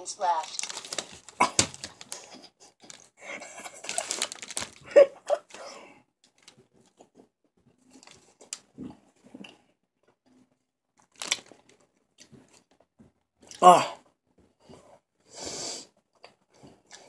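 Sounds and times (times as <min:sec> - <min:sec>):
crinkly crackly noises: 0:00.0 - 0:13.2
chewing and crunching chocolate: 0:00.4 - 0:13.6.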